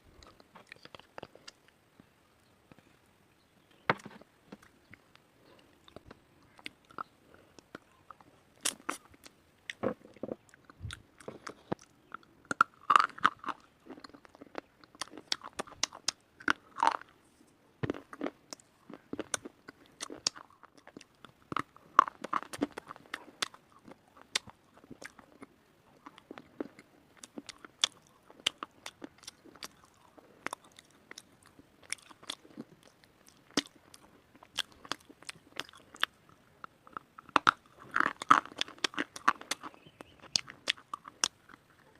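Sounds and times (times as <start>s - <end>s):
person crunching stone with teeth: 9.7s - 17.1s, 36.9s - 41.6s.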